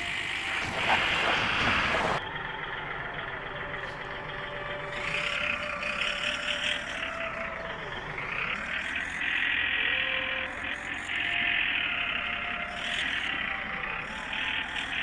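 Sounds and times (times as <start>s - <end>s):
toy tractor motor whirring: 3.6s - 15.0s.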